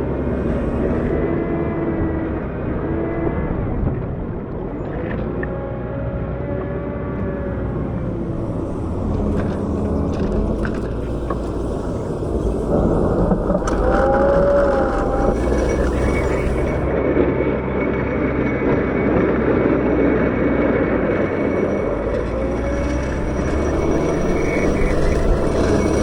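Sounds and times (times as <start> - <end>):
wheel loader diesel engine: 0.0 - 26.0
brief squeal: 8.3 - 17.0, 21.4 - 26.0.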